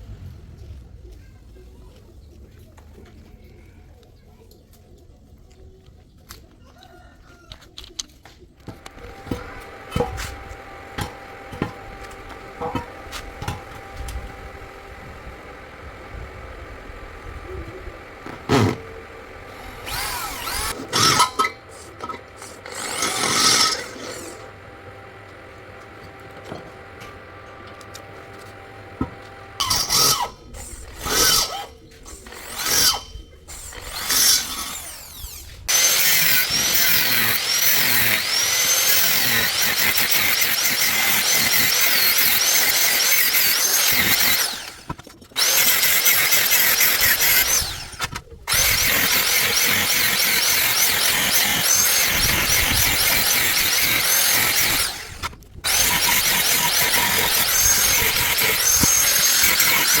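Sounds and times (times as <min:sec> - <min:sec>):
power tool cutting steel: 0:08.7 - 1:00.0.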